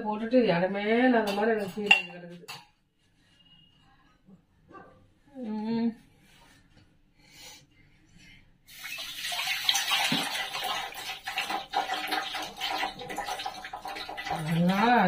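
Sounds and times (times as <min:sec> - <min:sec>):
water running from a tap: 0:08.7 - 0:15.0.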